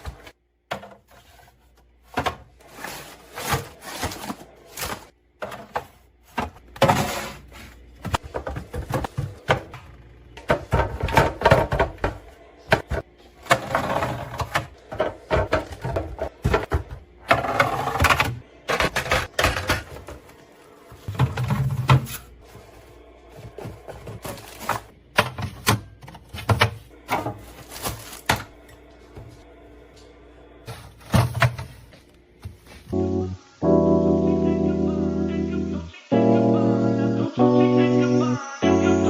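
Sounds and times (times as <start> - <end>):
items clicking and clattering: 0.0 - 29.4, 30.7 - 32.0.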